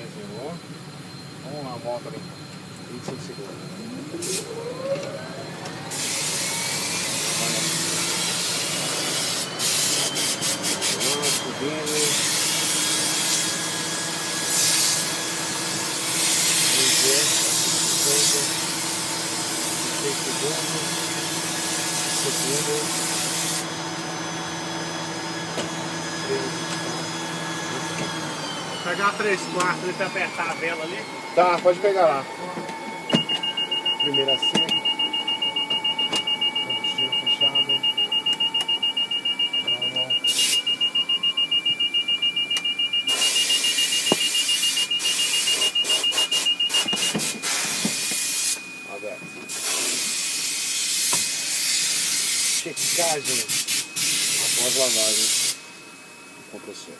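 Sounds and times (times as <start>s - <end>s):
rapid warning beeps: 0.0s - 5.6s, 7.3s - 12.2s, 33.0s - 50.1s, 52.4s - 56.9s
steady high tone: 0.0s - 13.3s, 15.0s - 50.5s, 51.4s - 56.9s
turboprop engine whine: 0.0s - 56.9s.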